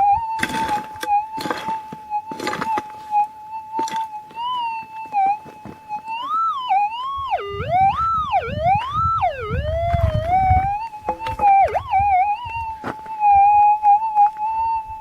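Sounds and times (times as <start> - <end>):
metal detector hum: 5.2 - 14.1
metal detector pitch swoops: 6.0 - 13.4
low rumbling noise: 7.1 - 12.7.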